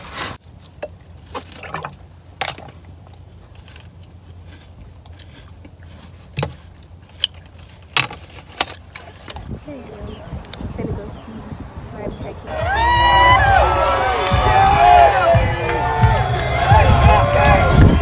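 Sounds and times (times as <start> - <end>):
low steady car hum: 0.4 - 18.0.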